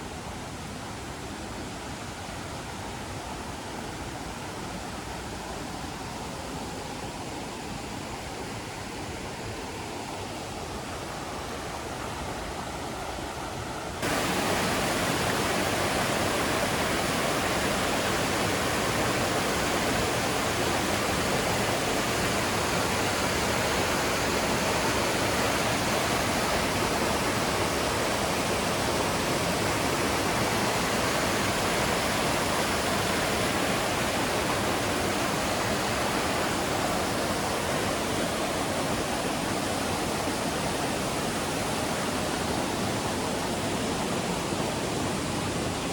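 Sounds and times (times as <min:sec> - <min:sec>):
waterfall rushing: 0:14.0 - 0:45.9.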